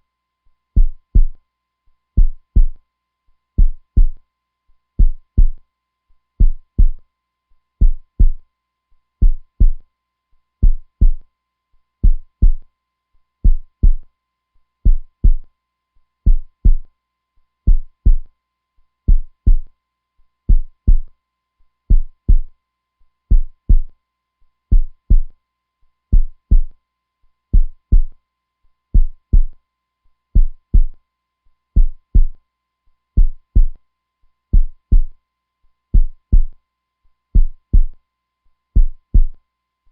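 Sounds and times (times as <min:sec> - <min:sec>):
heartbeat: 0:00.8 - 0:01.4, 0:02.2 - 0:02.8, 0:03.6 - 0:04.2, 0:05.0 - 0:05.6, 0:06.4 - 0:07.0, 0:07.8 - 0:08.4, 0:09.2 - 0:09.8, 0:10.6 - 0:11.2, 0:12.0 - 0:12.6, 0:13.4 - 0:14.0, 0:14.9 - 0:15.5, 0:16.3 - 0:16.9, 0:17.7 - 0:18.3, 0:19.1 - 0:19.7, 0:20.5 - 0:21.1, 0:21.9 - 0:22.5, 0:23.3 - 0:23.9, 0:24.7 - 0:25.3, 0:26.1 - 0:26.7, 0:27.6 - 0:28.2, 0:29.0 - 0:29.6, 0:30.4 - 0:31.0, 0:31.8 - 0:32.4, 0:33.2 - 0:33.8, 0:34.5 - 0:35.2, 0:36.0 - 0:36.5, 0:37.4 - 0:38.0, 0:38.8 - 0:39.4.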